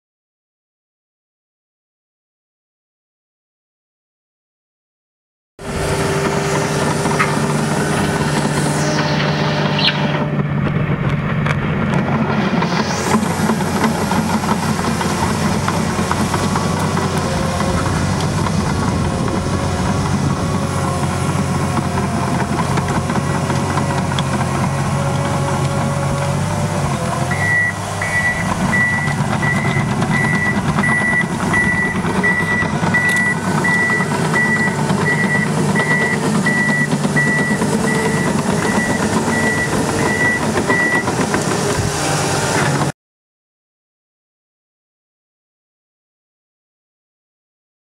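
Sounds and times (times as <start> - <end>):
bulldozer diesel engine under load: 5.6 - 42.9
reversing alarm beeping: 27.3 - 41.2.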